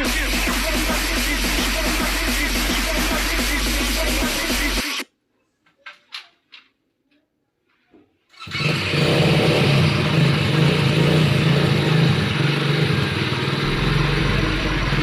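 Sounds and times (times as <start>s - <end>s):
quad bike engine running: 8.4s - 15.0s.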